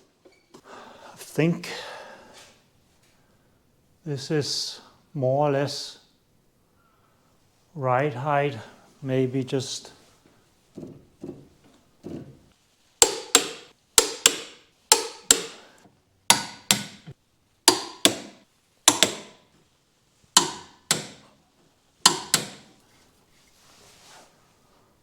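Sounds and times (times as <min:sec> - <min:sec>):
hammer striking metal: 0:13.0 - 0:15.6, 0:16.3 - 0:17.0, 0:17.7 - 0:19.4, 0:20.4 - 0:21.3, 0:22.1 - 0:22.7.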